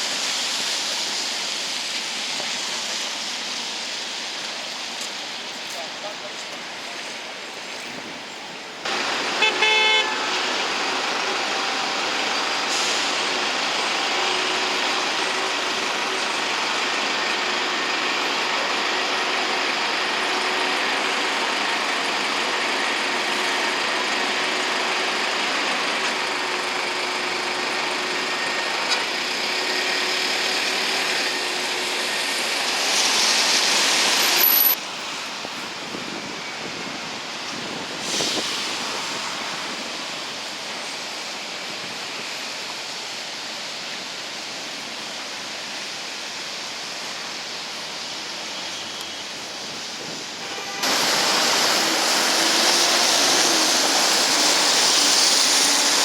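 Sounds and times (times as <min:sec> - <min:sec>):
city traffic noise: 0:00.0 - 0:56.0
vehicle horn honking: 0:09.4 - 0:10.4, 0:50.4 - 0:51.1.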